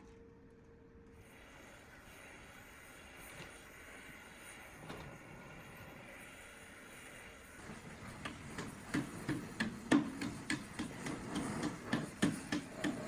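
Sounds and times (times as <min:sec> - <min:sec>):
light knocks and scraping on metal: 0:08.0 - 0:13.0.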